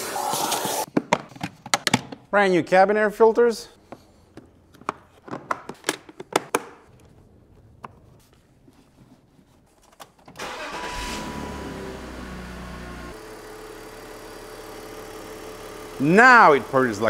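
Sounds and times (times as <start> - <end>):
car engine starting and running: 10.4 - 17.0.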